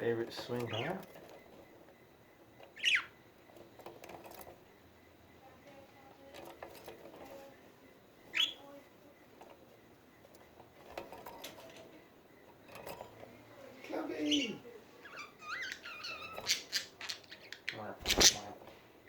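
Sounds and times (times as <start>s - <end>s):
soft budgerigar chatter: 0.0s - 19.0s
budgerigar sharp chirps: 2.8s - 3.2s, 8.3s - 8.6s.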